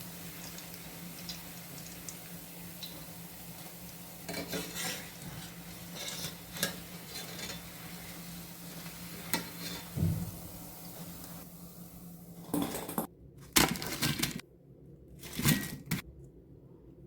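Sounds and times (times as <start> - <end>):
food sizzling in hot oil: 0.0 - 12.5.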